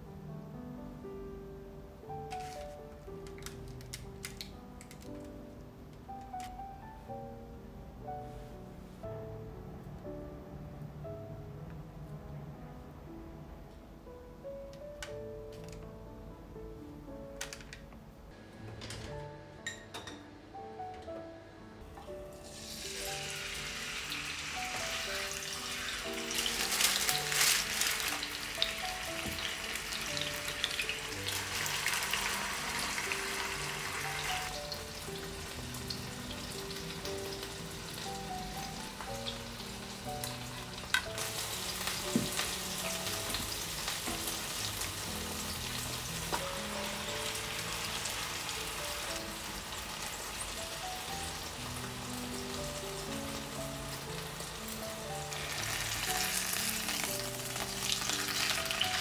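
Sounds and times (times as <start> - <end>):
food sizzling in oil: 22.3 - 59.0.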